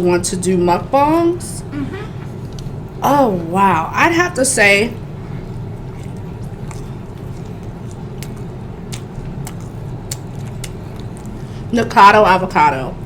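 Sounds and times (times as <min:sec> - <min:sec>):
steady low hum: 0:00.0 - 0:13.0
person chewing food: 0:05.0 - 0:11.7.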